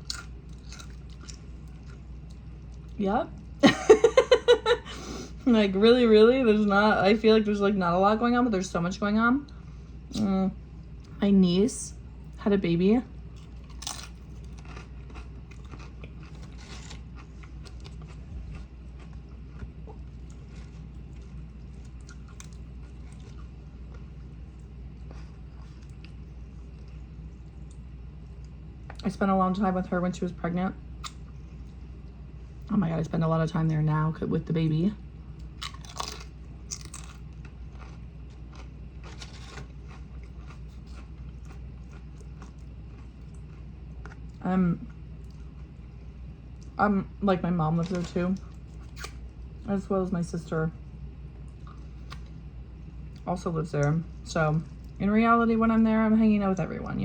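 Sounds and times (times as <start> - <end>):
close chewing with crisp crunches: 0.0 - 3.6, 13.3 - 29.1, 35.4 - 46.8, 47.8 - 49.7, 51.4 - 55.0.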